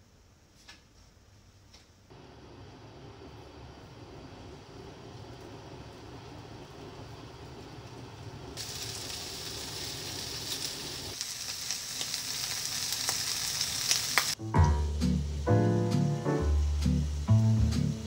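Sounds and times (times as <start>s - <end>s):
low steady hum: 2.1s - 9.2s
rolls sizzling in hot oil: 2.1s - 14.4s, 15.0s - 18.0s.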